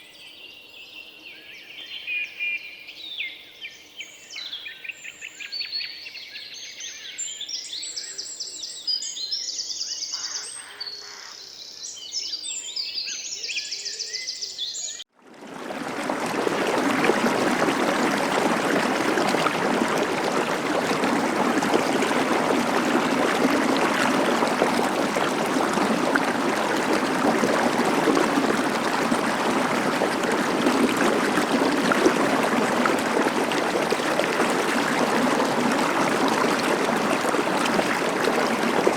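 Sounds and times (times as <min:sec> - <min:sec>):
stream water rushing: 0:15.3 - 0:38.9.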